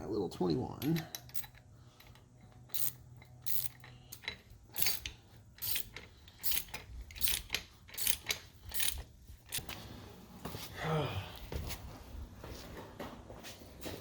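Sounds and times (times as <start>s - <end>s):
hand ratchet clicking: 0.7s - 9.7s.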